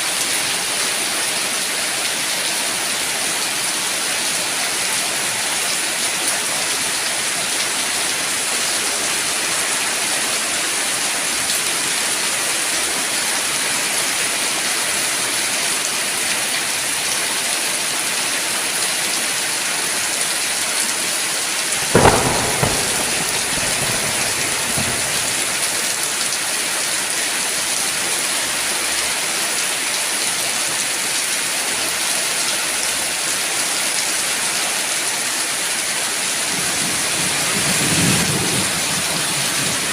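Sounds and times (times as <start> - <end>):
heavy rain falling: 0.0 - 39.9
thunderclap: 21.8 - 26.0.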